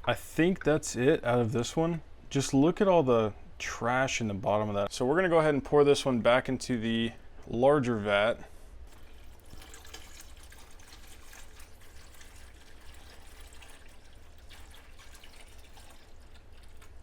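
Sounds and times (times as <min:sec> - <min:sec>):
liquid trickling into a vat: 0:08.8 - 0:17.0.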